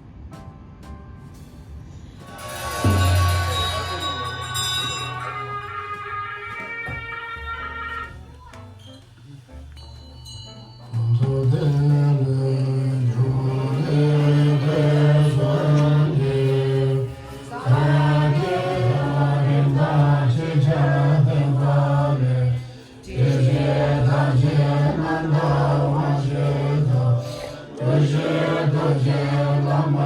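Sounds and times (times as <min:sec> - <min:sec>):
low sustained chanting voices: 0:11.0 - 0:30.0.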